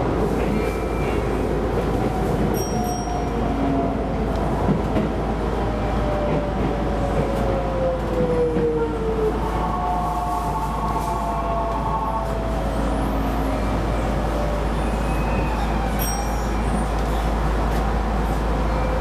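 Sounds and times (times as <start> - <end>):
train rumbling on rails: 0.0 - 19.0.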